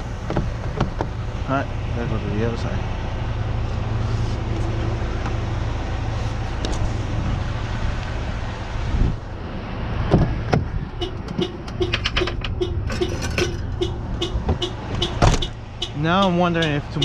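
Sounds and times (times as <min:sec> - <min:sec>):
truck engine idling: 0:10.3 - 0:17.0
thump: 0:15.2 - 0:15.5.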